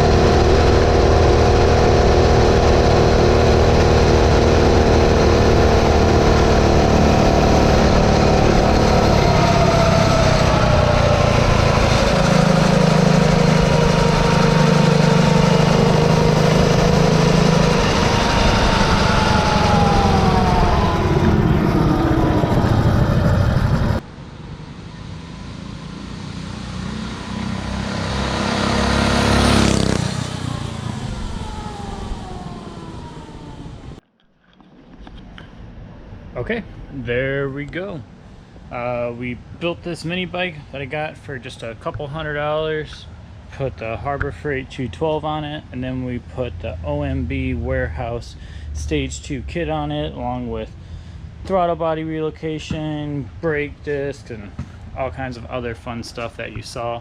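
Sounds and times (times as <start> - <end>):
mini bike engine revving: 0.0 - 24.0, 25.9 - 34.0
mini bike passing: 0.0 - 24.0, 25.4 - 33.9.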